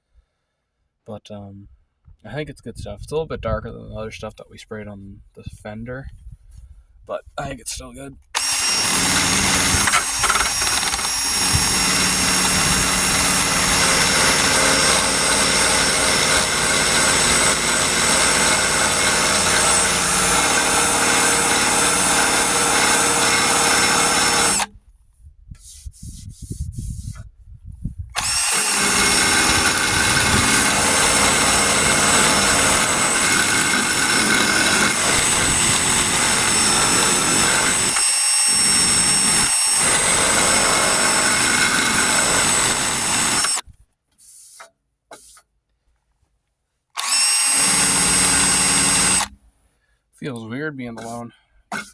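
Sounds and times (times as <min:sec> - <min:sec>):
power burnishing tool stripping paint: 0:08.4 - 0:24.7, 0:28.2 - 0:43.6, 0:47.0 - 0:49.4.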